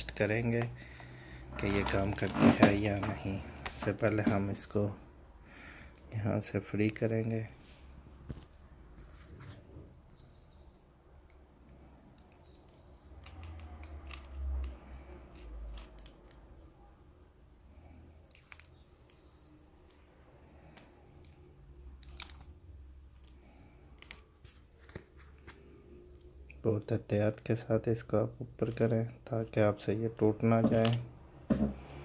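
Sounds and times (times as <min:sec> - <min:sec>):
small parts clicking and tapping: 0:11.2 - 0:16.7, 0:18.2 - 0:20.0.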